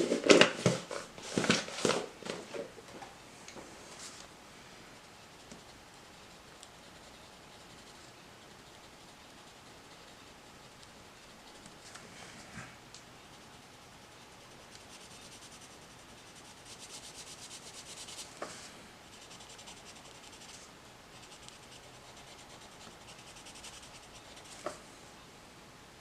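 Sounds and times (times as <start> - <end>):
pencil scratching on paper: 13.2 - 18.5, 19.1 - 20.6, 21.2 - 24.7.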